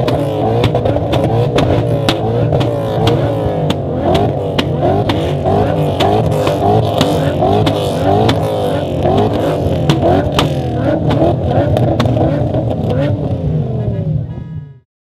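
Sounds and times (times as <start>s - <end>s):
exhaust cracks: 0.0s - 14.0s
car engines revving: 0.0s - 14.8s.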